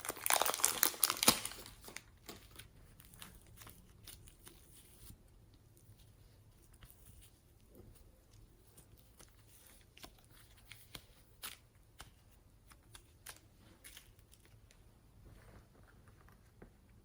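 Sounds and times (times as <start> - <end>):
sticky slime clicks and crackles: 0.1 - 4.5.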